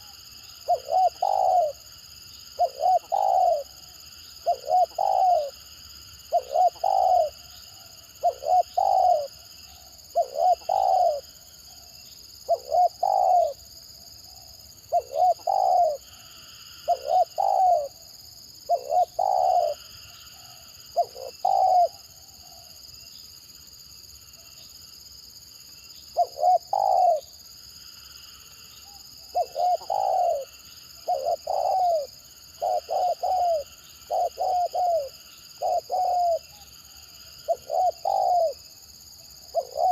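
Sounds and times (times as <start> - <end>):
dove cooing: 0.0 - 1.9, 2.6 - 5.6, 6.3 - 13.6, 14.3 - 18.0, 18.7 - 22.7, 26.2 - 27.3, 28.9 - 38.7, 39.4 - 39.9.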